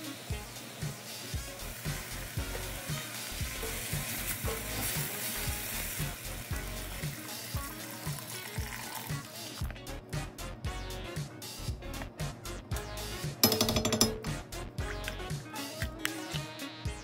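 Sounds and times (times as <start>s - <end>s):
meat and vegetables sizzling in pot: 0.0s - 10.5s
background music with steady beat: 0.0s - 17.0s
water pouring into pot: 2.1s - 9.6s.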